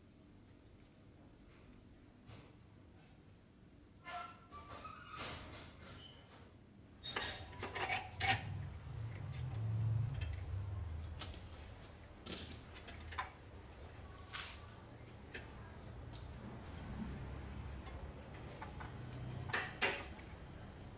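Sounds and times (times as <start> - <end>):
small metal parts clinking: 7.1 - 11.5
low rumble: 7.4 - 13.7.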